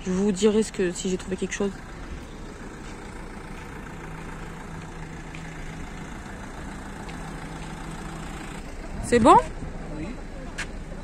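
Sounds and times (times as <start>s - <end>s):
low traffic rumble: 0.0s - 11.0s
vehicle engine idling: 0.0s - 11.0s.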